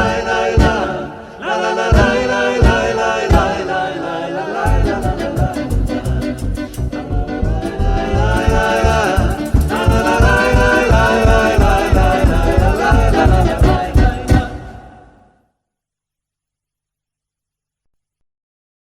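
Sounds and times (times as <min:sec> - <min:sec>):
fast folk beat: 0:00.0 - 0:01.0, 0:01.7 - 0:03.7, 0:04.7 - 0:14.7
voices singing: 0:00.0 - 0:15.3.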